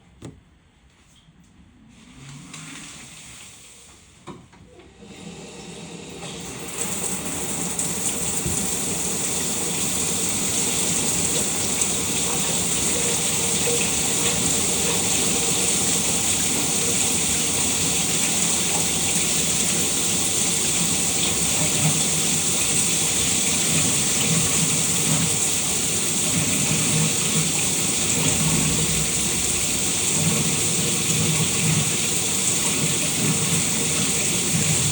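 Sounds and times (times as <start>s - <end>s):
shower water spraying: 5.0s - 34.9s.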